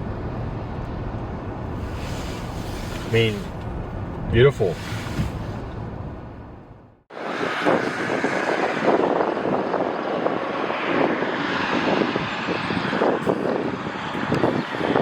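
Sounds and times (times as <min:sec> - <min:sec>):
steady rushing noise: 0:07.1 - 0:15.0.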